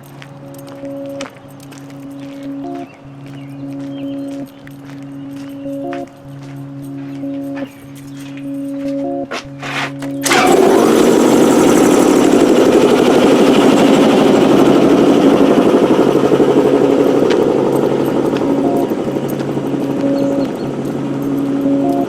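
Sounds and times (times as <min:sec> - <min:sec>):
background music: 0:00.0 - 0:22.0
vehicle engine running roughly: 0:09.6 - 0:22.0.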